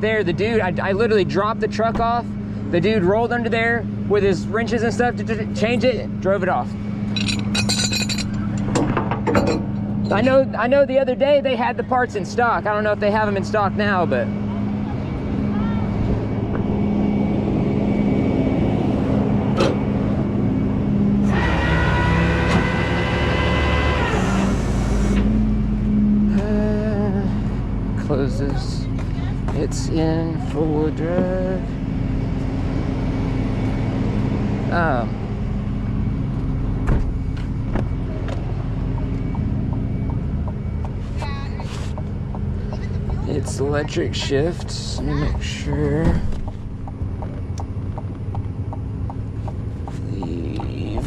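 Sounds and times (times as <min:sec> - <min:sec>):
steady whine: 0:00.0 - 0:51.0
truck engine idling: 0:17.2 - 0:51.0.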